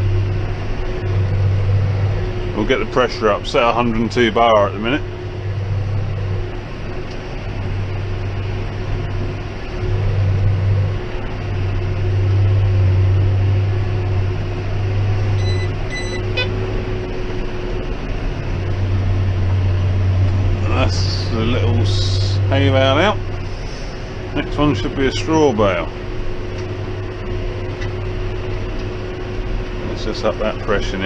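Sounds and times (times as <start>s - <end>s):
tractor engine drone: 0.0s - 31.0s
short electronic beeps: 15.4s - 16.6s.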